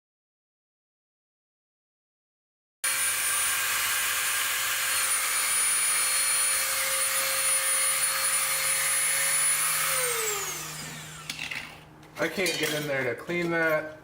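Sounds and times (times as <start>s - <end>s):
electric grinder whining: 2.9s - 11.8s.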